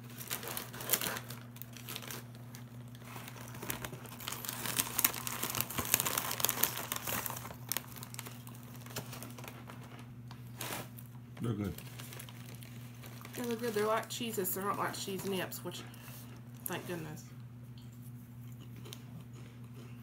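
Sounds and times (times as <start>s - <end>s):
snack bag crinkling: 0.0s - 15.4s
steady low hum: 0.0s - 20.0s.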